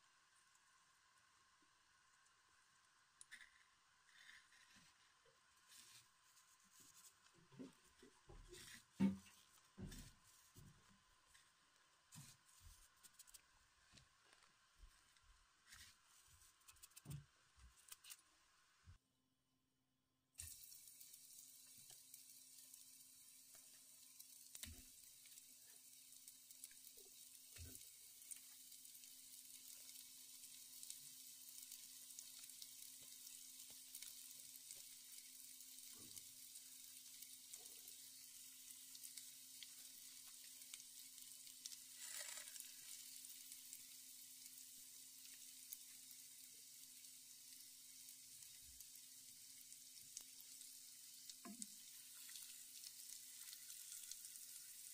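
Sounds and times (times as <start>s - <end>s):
soft knocks in pan: 7.6s - 10.2s
food sizzling in oil: 20.4s - 54.9s.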